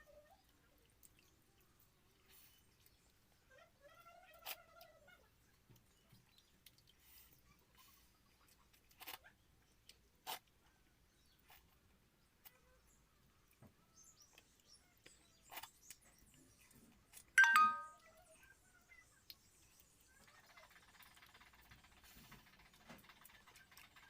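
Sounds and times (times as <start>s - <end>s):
soft eating clicks: 0.3s - 2.2s, 5.6s - 7.0s.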